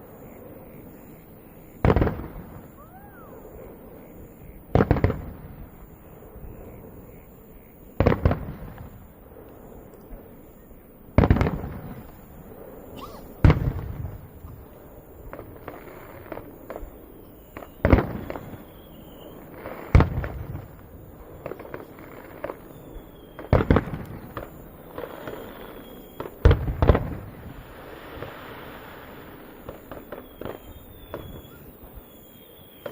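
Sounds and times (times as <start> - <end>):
fireworks booming: 0.0 - 32.9
faint whistles: 2.5 - 4.6, 12.0 - 13.4, 15.8 - 19.6, 21.4 - 26.4, 29.6 - 32.9.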